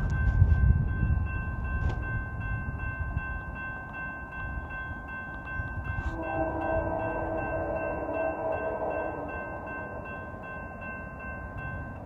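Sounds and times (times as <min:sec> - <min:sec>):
chime-like tone chord: 0:00.0 - 0:12.0
freight train rumble: 0:00.0 - 0:12.0
steady high tones: 0:04.0 - 0:12.0.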